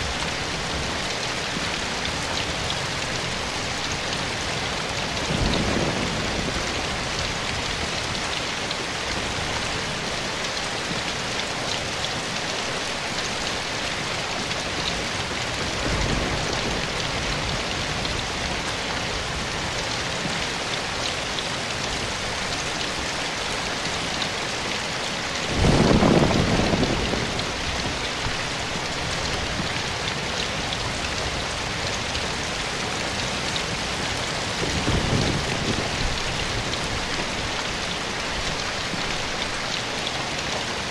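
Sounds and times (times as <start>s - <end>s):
steady rain falling: 0.0s - 40.9s
thunder rumbles: 5.1s - 8.2s, 15.1s - 19.7s, 25.5s - 33.0s, 33.7s - 37.6s.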